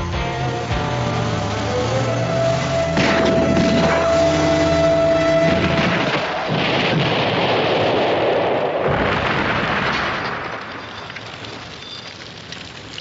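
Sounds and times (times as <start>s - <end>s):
explosion roar: 1.0s - 10.6s.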